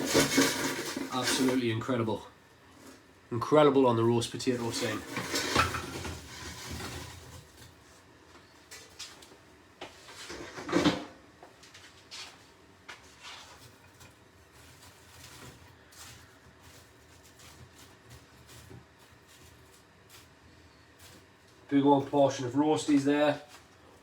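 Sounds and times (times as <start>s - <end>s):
loud clatter of dishes: 0.0s - 1.6s, 4.7s - 7.5s, 10.3s - 11.2s.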